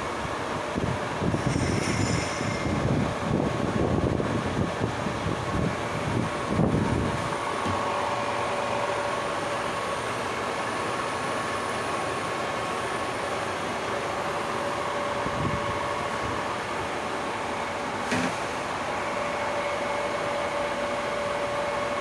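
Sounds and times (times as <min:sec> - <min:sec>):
lathe humming and whining: 0:00.0 - 0:22.0.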